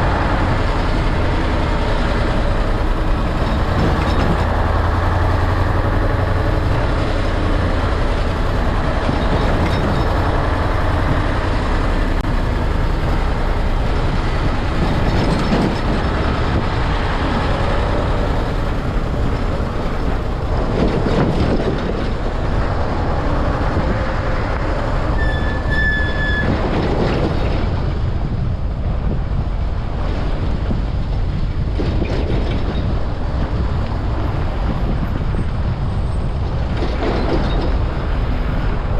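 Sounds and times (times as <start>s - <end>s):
heavy road traffic rumble: 0.0s - 38.9s
brief high squeal: 25.2s - 26.6s.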